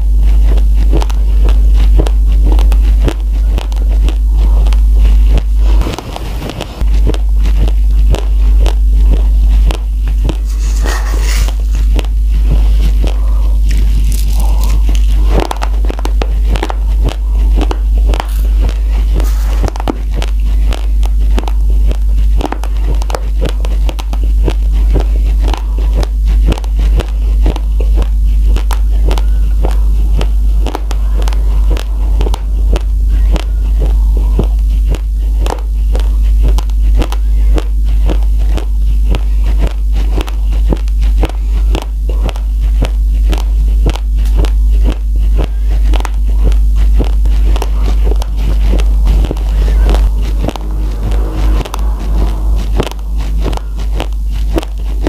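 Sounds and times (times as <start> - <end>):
crunching of chewed rice grains: 0.0 - 51.5
steady low hum: 0.0 - 55.0.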